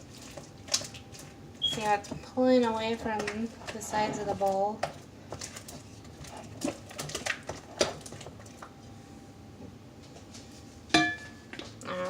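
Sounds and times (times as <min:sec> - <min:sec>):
slime squelching in a bowl: 0:00.0 - 0:08.8.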